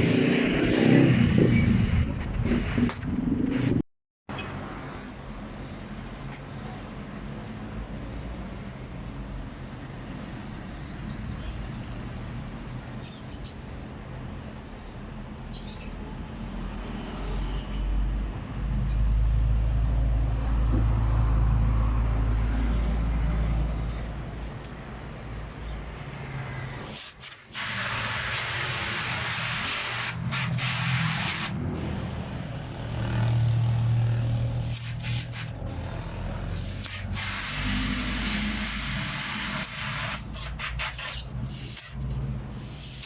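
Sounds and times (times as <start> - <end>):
loud hiss of air: 26.8 - 32.1, 36.7 - 40.9, 42.6 - 43.0.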